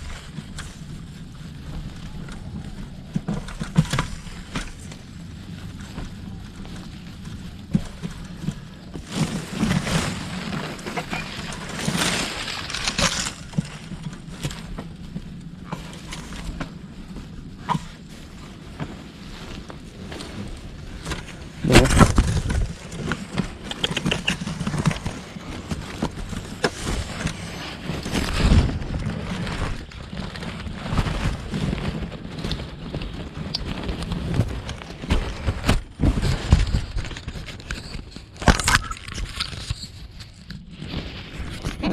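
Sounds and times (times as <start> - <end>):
crackling rustles: 0.0 - 41.9
knocks and scrapes: 0.0 - 41.9.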